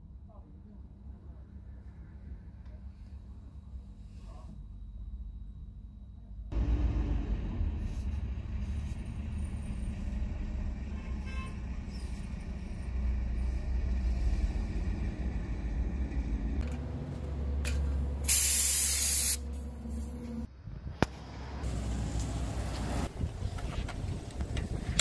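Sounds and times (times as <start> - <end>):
vehicle engine rumbling: 0.1 - 25.0
compressed air hiss: 18.2 - 20.1.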